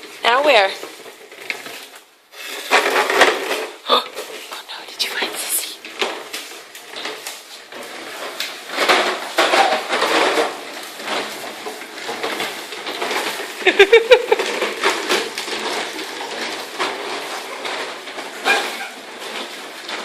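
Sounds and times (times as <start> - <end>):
toy motorbikes rattling on floor: 0.0 - 20.0.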